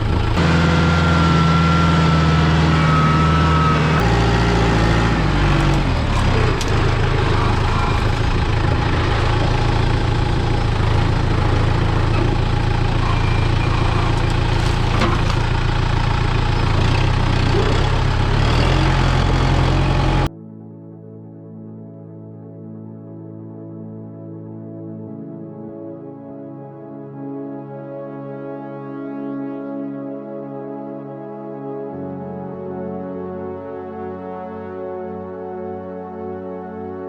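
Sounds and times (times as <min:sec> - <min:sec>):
excavator engine running: 0:00.0 - 0:20.3.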